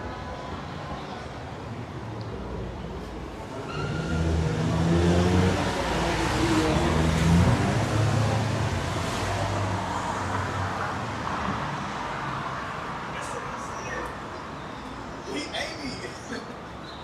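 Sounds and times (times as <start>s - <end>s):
traffic noise: 0.0s - 17.0s
vehicle engine accelerating past: 4.0s - 9.2s.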